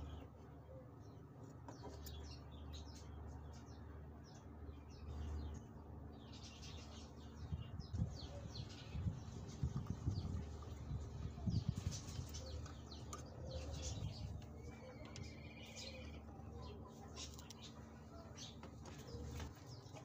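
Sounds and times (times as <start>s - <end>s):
small birds chirping: 0.0s - 20.0s
steady low rumble: 7.2s - 18.2s.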